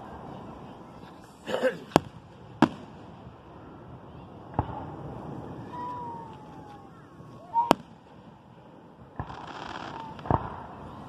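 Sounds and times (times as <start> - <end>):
distant fireworks bursting: 0.0 - 11.0
faint falling whistle: 5.6 - 7.8.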